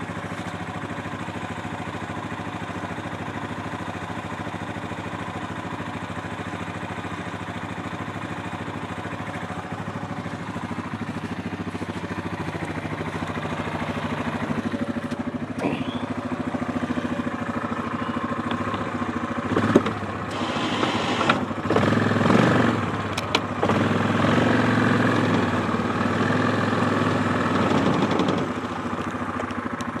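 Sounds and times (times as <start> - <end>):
atv engine running: 0.0 - 30.0
sharp engine knocks: 19.5 - 20.0, 27.6 - 28.7.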